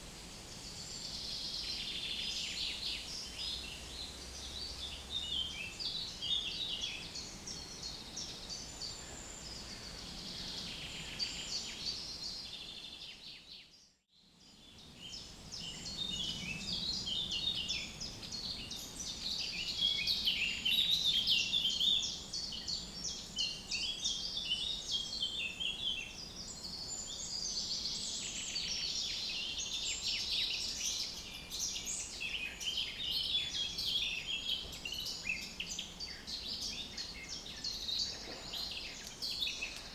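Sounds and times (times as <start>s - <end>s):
birds singing and chirping: 15.6s - 39.9s.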